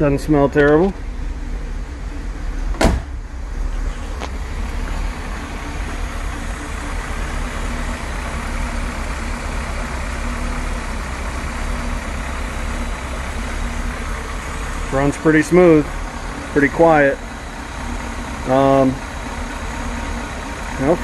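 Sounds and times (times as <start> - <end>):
car engine idling: 0.0 - 21.0
car door thump: 2.6 - 3.2.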